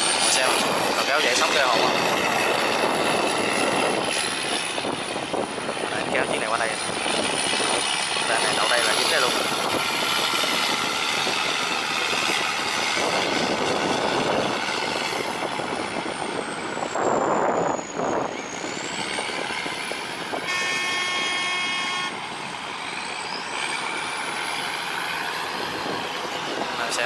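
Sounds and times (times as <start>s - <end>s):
boat engine running: 0.0s - 27.0s
rush of noise: 0.0s - 27.0s
horn sounding: 20.4s - 22.3s.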